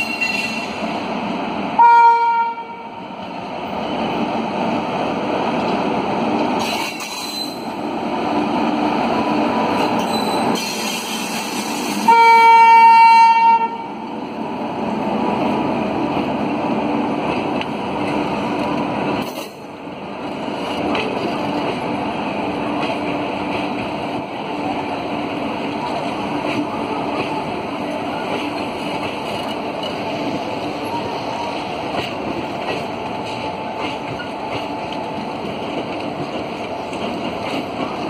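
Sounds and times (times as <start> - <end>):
train wheels on rail: 0.0 - 38.0
train horn blast: 1.8 - 2.9, 12.0 - 13.9.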